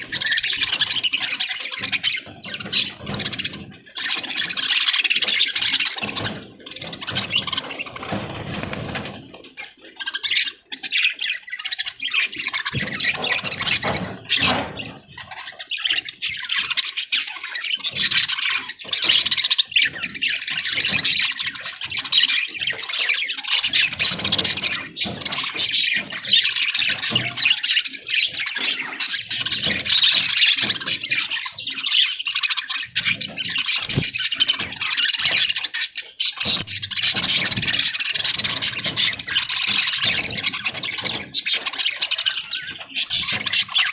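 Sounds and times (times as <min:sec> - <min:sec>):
budgerigars chattering: 0:00.0 - 0:43.9.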